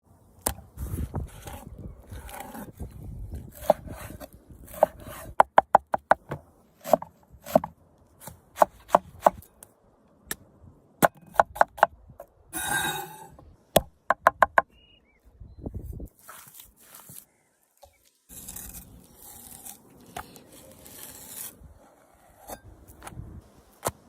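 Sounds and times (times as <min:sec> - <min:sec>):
scraping rustle: 0:16.1 - 0:17.3.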